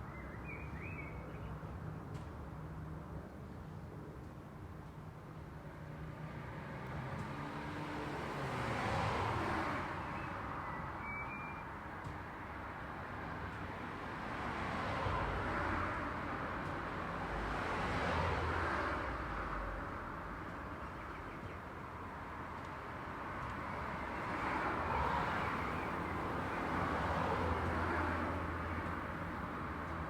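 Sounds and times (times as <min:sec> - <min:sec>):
cars passing: 0:06.2 - 0:10.6, 0:13.4 - 0:21.0, 0:22.1 - 0:30.0.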